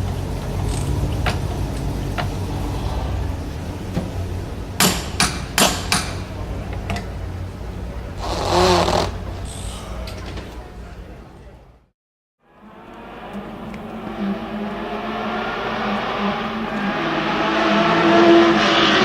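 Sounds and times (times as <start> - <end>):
car engine idling: 0.0 - 11.8
sharp knocks: 4.8 - 6.3.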